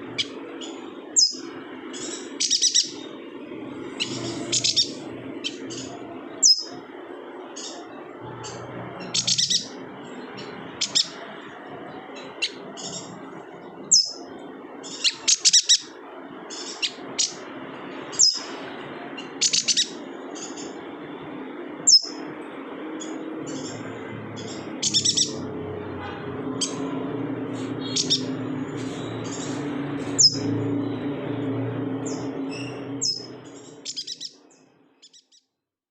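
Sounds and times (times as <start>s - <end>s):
steady low hum: 0.0s - 34.9s
bird high sharp chirps: 0.1s - 3.1s, 3.8s - 6.9s, 7.6s - 11.2s, 13.8s - 17.4s, 18.1s - 18.6s, 19.2s - 20.8s, 21.9s - 22.2s, 23.0s - 25.5s, 27.7s - 30.6s, 32.1s - 35.4s.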